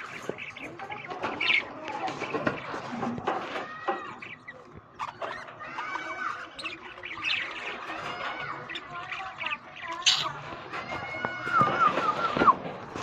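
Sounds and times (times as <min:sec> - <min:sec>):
budgerigars chattering: 0:00.0 - 0:10.8
sharp bird squawk: 0:09.9 - 0:10.4.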